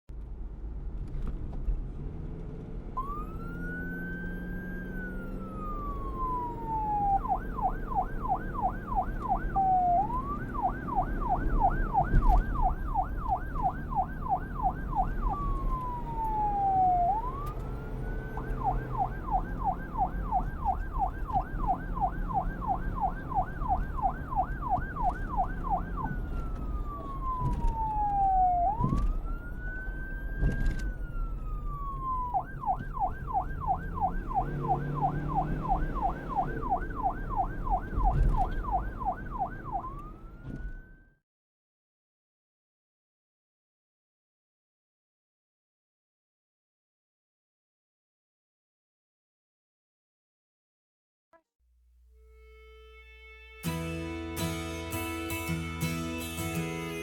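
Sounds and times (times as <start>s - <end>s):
emergency vehicle siren: 2.9s - 41.2s, 53.6s - 57.0s.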